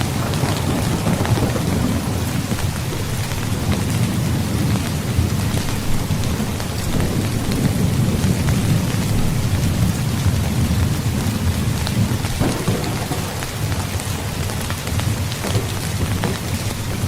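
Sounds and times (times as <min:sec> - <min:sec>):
heavy rain falling: 0:00.0 - 0:17.0
low rolling thunder: 0:00.0 - 0:17.0.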